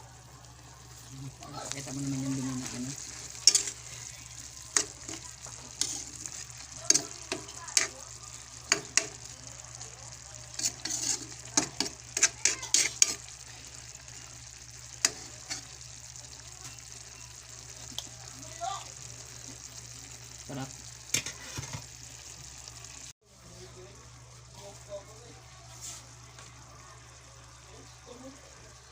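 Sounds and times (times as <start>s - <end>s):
food sizzling in a pan: 0.0s - 28.9s
utensil clacking against pan: 4.7s - 7.9s, 8.7s - 9.3s, 10.6s - 13.3s.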